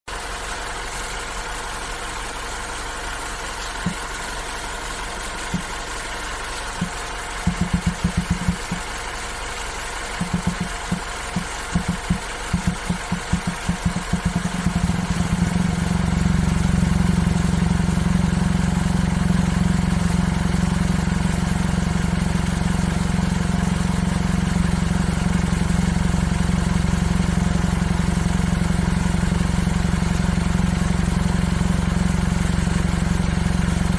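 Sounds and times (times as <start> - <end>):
car engine running: 0.1 - 33.9
low knocks: 7.5 - 8.8, 10.2 - 14.9.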